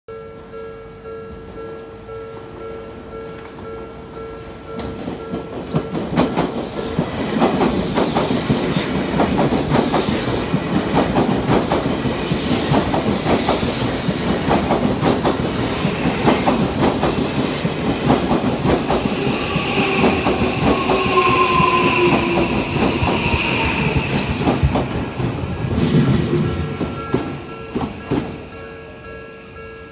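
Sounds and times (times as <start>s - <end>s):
crossing warning bell: 0.1s - 6.1s, 26.4s - 29.9s
train whine: 3.3s - 29.6s
train wheels clattering: 4.8s - 28.5s.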